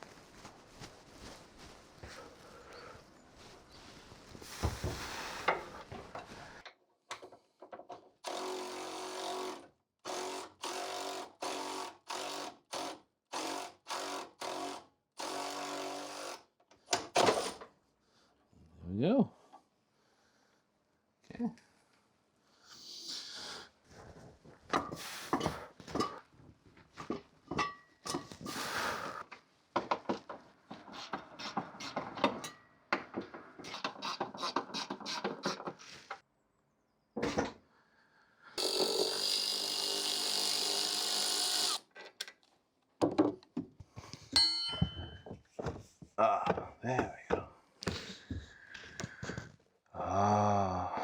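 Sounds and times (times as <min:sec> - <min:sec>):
power tool running: 0:08.2 - 0:16.3, 0:38.6 - 0:41.9
hand tool clicks and clanks: 0:44.4 - 0:45.3.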